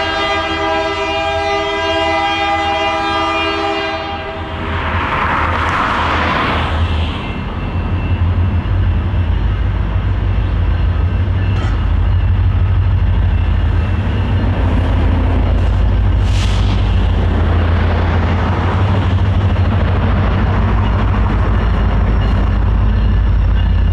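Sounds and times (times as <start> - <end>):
locomotive horn: 0.0 - 4.6
diesel locomotive engine rumble: 0.0 - 23.9
hiss: 16.1 - 17.2.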